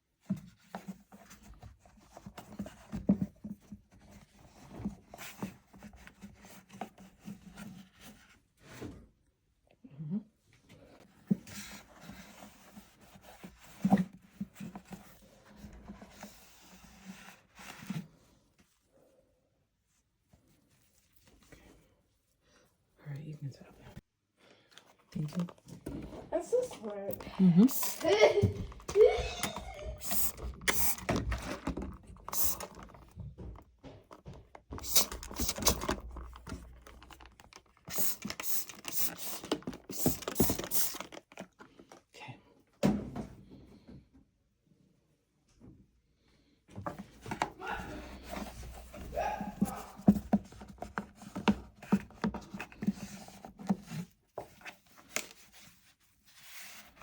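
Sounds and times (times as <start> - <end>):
scrubbing rubber door seal: 27.2 - 33.6, 34.3 - 41.3.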